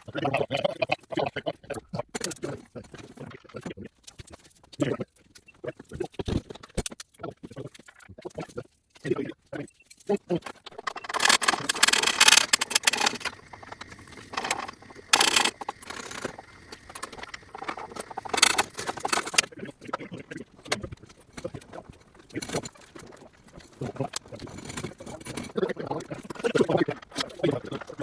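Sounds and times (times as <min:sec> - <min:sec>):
clatter of tools and parts: 0:10.0 - 0:28.0
scattered clicks: 0:10.6 - 0:25.5.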